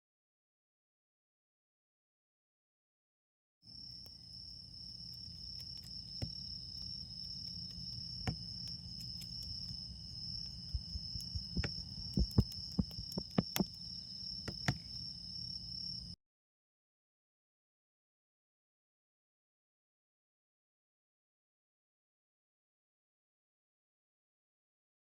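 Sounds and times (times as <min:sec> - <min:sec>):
insects trilling: 0:03.7 - 0:16.2
wood fire crackling and popping: 0:05.1 - 0:15.0.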